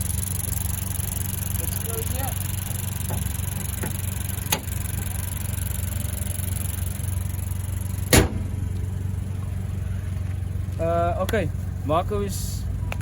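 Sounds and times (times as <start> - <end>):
car engine idling: 0.0 - 13.0
loud thump: 8.1 - 8.8.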